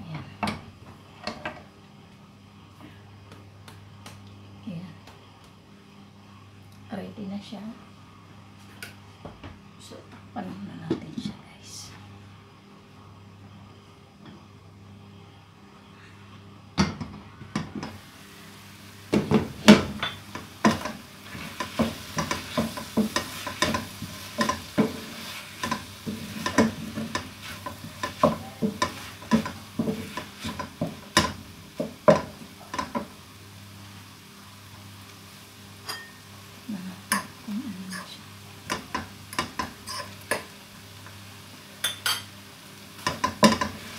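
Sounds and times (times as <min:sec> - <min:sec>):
faint frying sizzle: 0:00.0 - 0:43.9.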